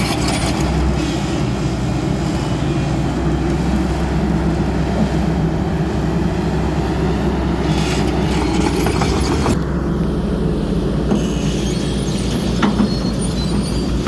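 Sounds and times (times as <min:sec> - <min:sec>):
metallic clanks and squeaks: 0:00.0 - 0:01.5, 0:07.6 - 0:09.6, 0:11.1 - 0:14.0
diesel engine running: 0:00.0 - 0:14.0.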